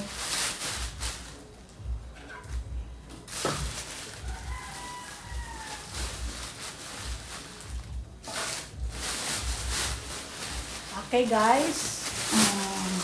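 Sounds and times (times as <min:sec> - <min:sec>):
rustling: 0:00.0 - 0:13.0
rooster crowing: 0:04.1 - 0:06.4.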